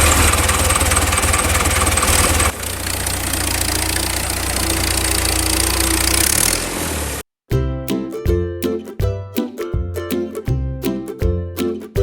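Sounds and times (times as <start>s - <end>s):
small engine running: 0.0s - 7.2s.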